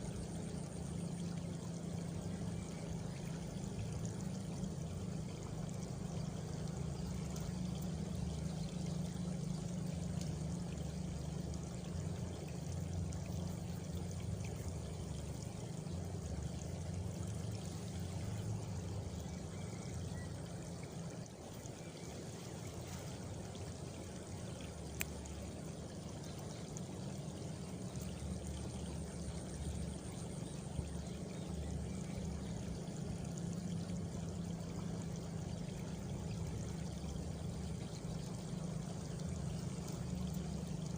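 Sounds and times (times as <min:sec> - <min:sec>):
flowing water rushing: 0:00.0 - 0:40.9
faint clicks: 0:22.3 - 0:26.7.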